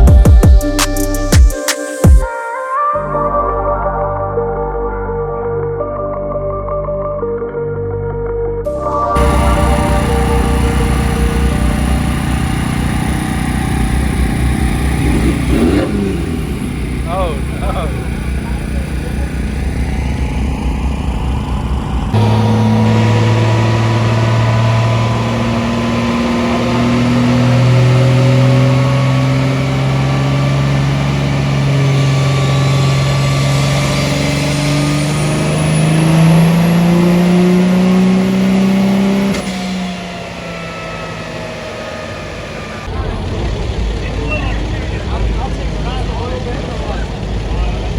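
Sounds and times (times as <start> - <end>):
truck engine revving: 8.7 - 47.9
faint high whine: 9.1 - 15.3.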